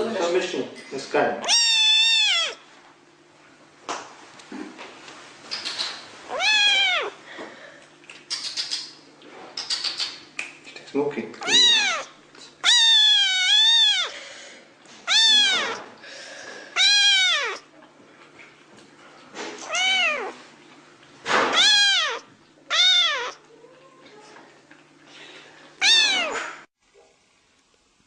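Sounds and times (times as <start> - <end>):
cat meowing: 1.4 - 2.6, 6.3 - 7.2, 11.4 - 14.2, 15.0 - 15.9, 16.8 - 17.7, 19.6 - 20.4, 21.4 - 23.8, 25.8 - 26.5.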